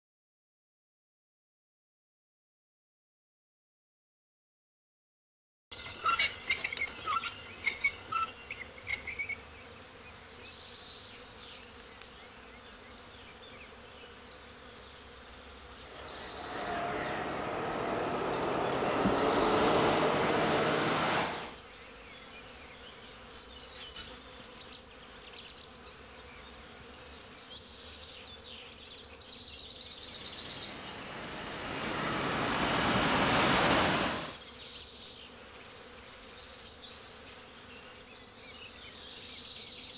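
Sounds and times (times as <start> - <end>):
car passing on road: 15.8 - 21.6, 30.1 - 34.4.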